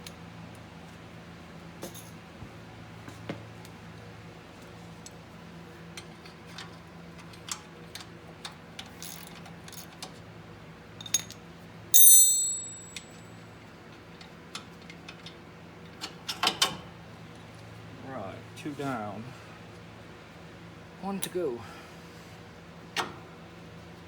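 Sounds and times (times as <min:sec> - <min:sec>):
loud ringing metal clink: 0:12.0 - 0:13.2.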